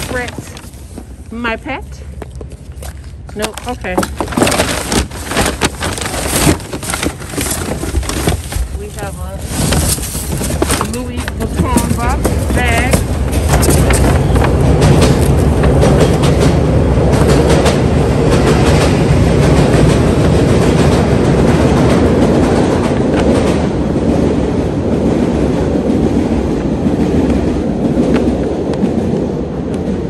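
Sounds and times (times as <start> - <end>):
train wheels clattering over rails: 2.5 - 30.0.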